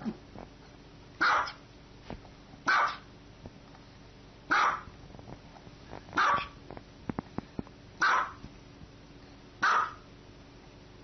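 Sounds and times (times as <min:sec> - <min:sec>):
small dog barking: 0:01.2 - 0:01.6, 0:02.7 - 0:03.1, 0:04.5 - 0:04.9, 0:06.2 - 0:06.6, 0:08.0 - 0:08.4, 0:09.6 - 0:10.1.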